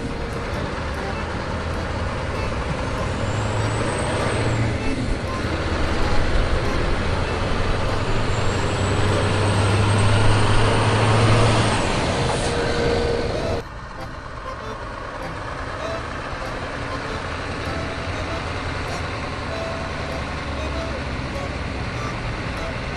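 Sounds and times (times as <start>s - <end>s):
truck engine roaring: 0.0s - 22.9s.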